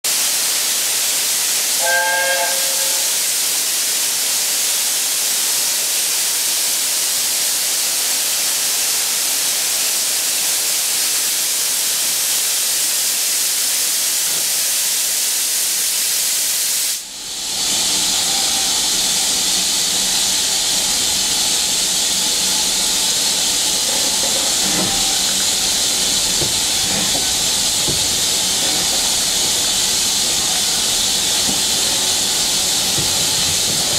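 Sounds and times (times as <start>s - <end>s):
steam locomotive hissing: 0.0s - 33.9s
short pitched tone: 1.8s - 3.2s.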